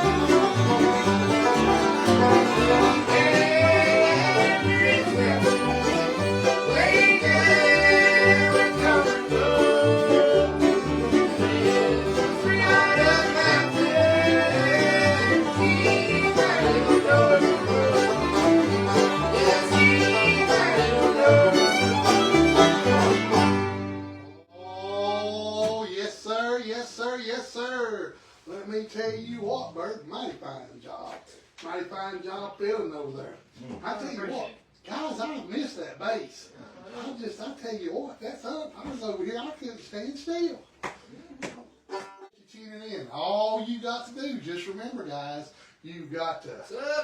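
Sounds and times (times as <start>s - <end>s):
bluegrass band playing: 0.0s - 24.5s, 41.9s - 42.3s
fiddle: 0.0s - 24.5s
man talking: 3.0s - 7.6s, 24.6s - 40.7s, 42.4s - 47.0s.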